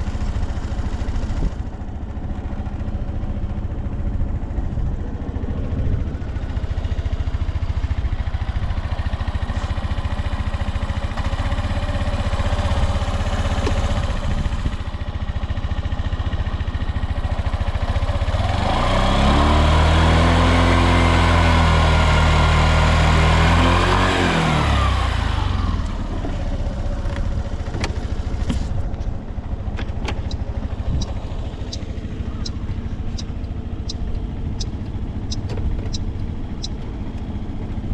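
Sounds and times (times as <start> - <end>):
scooter engine idling and revving: 0.0 - 37.9
sharp clicks: 29.8 - 37.3.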